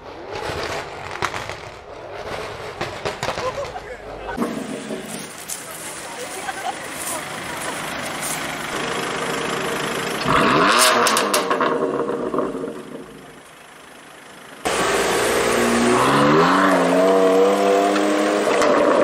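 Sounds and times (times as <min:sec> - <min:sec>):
car engine idling: 0:03.6 - 0:16.1
car accelerating away: 0:07.4 - 0:13.4, 0:14.6 - 0:19.0
engine revving: 0:08.7 - 0:13.4, 0:14.6 - 0:19.0.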